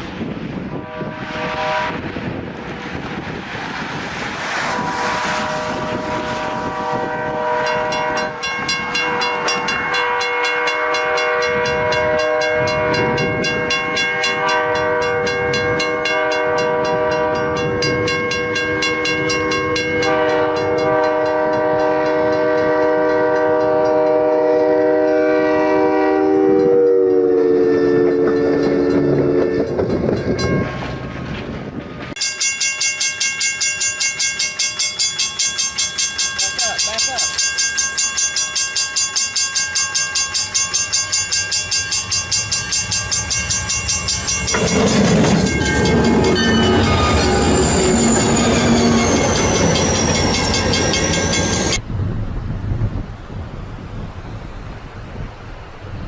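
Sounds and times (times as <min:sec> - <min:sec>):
moving train noise: 0:00.0 - 0:56.0
locomotive air horn chord: 0:00.8 - 0:02.1, 0:04.7 - 0:08.4, 0:09.0 - 0:30.0.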